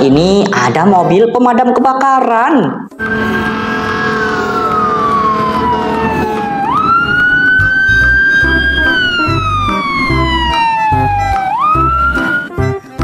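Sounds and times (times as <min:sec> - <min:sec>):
electronic siren wailing: 0:03.0 - 0:12.5
steady thumping beat: 0:05.1 - 0:13.0.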